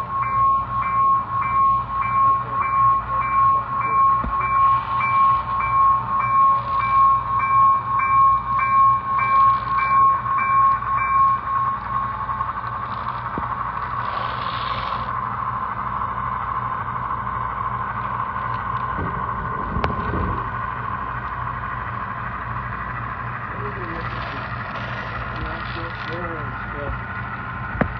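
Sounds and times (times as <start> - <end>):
railroad bell ringing: 0.0 - 14.2
steady running rumble: 0.0 - 27.9.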